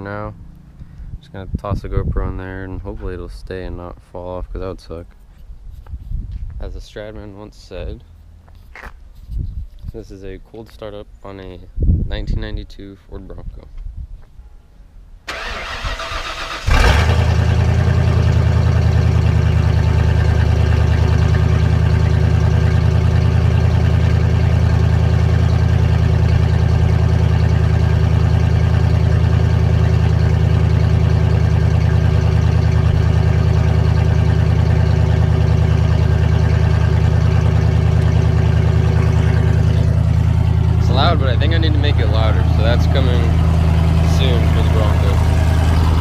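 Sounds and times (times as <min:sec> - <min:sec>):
engine idling loudly: 0:16.7 - 0:46.0.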